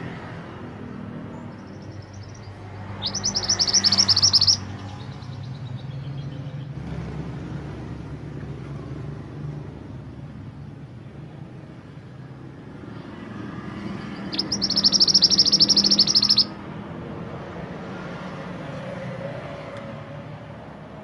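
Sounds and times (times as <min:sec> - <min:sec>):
songbird high trill: 0:01.5 - 0:06.4, 0:14.1 - 0:16.6.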